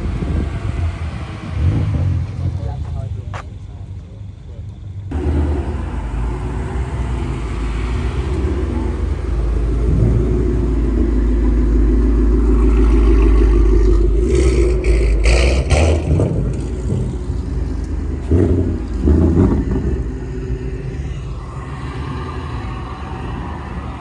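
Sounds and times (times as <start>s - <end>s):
car exhaust rumbling: 0.0s - 24.0s
engine revs: 0.0s - 24.0s
sharp exhaust pops: 4.7s - 21.0s.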